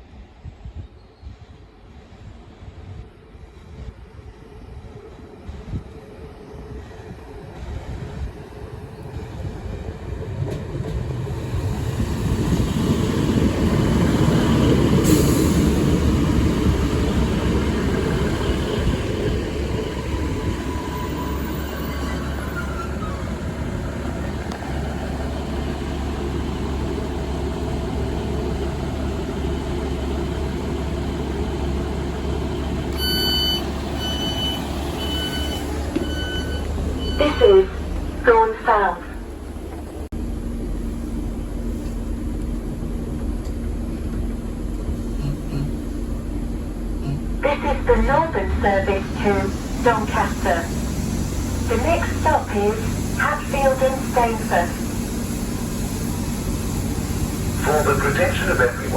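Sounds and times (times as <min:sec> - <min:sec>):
passenger train rumbling: 0:00.0 - 0:58.9
short electronic beeps: 0:33.0 - 0:37.8.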